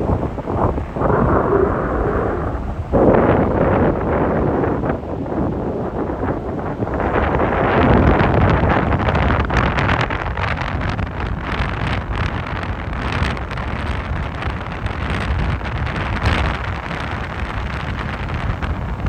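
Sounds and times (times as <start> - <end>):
heavy surf rushing: 0.0 - 12.3
wind buffeting microphone: 0.0 - 19.0.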